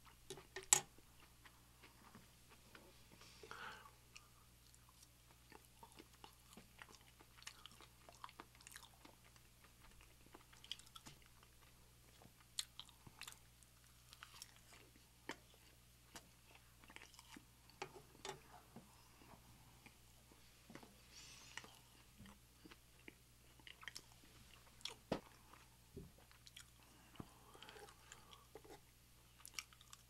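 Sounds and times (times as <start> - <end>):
chewing and wet mouth clicks: 4.1 - 18.4, 21.6 - 24.1, 26.2 - 26.8, 29.4 - 30.0.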